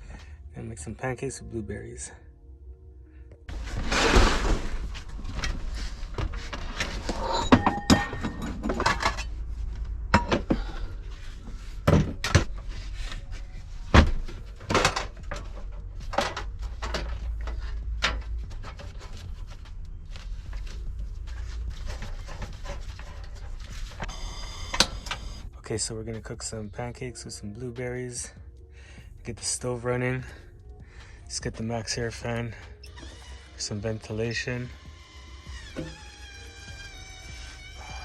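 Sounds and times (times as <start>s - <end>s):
steady low rumble: 9.0s - 24.0s.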